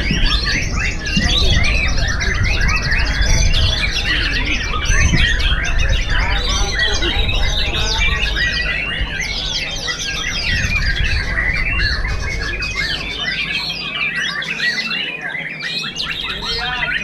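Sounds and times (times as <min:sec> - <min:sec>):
birds singing whistles and chirps: 0:00.0 - 0:17.0.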